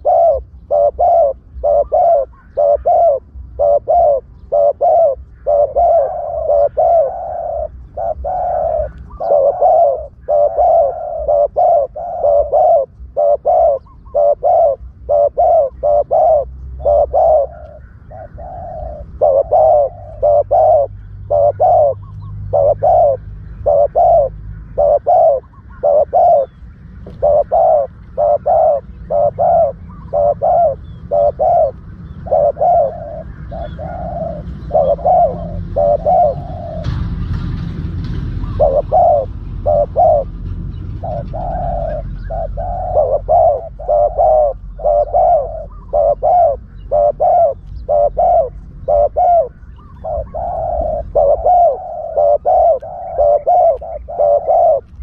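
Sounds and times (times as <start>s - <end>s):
doves cooing: 0.0s - 55.0s.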